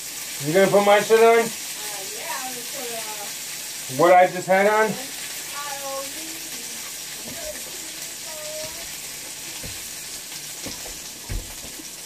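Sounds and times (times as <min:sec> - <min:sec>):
vegetables sizzling in a pan: 0:00.0 - 0:12.0
low knocks: 0:10.6 - 0:11.8.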